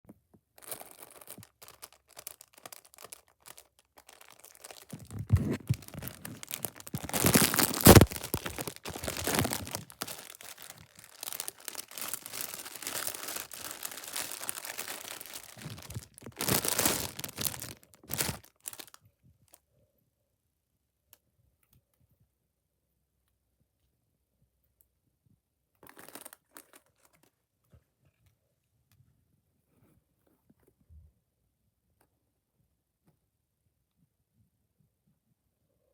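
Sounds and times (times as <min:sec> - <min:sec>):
packaging crinkling and tearing: 0:00.6 - 0:19.0.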